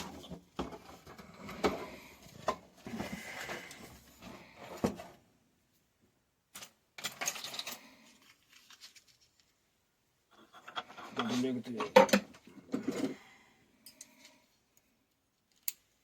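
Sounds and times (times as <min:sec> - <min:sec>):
rustling: 0:07.4 - 0:09.8.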